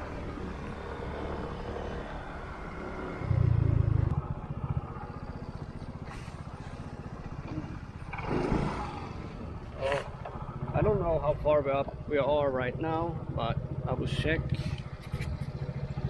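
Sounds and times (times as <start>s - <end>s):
motorbike engine running: 3.2s - 16.0s.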